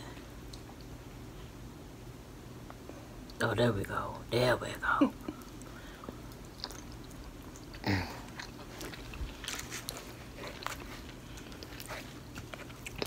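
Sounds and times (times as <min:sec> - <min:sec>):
chewing and lip smacks: 0:05.3 - 0:13.0.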